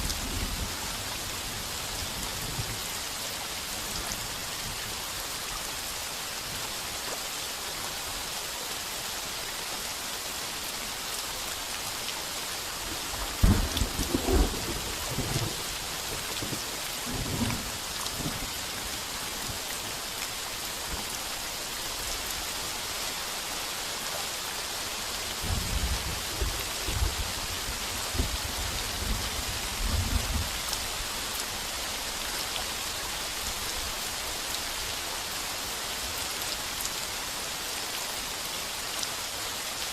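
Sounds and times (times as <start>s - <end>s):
heavy rain on a tin roof: 0.0s - 39.9s
thunder cracks and rumbles: 13.4s - 15.6s.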